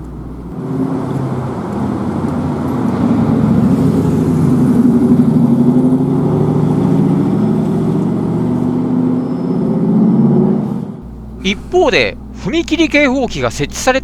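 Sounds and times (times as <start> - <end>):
vehicle engine running: 0.0 - 0.6, 11.0 - 14.0.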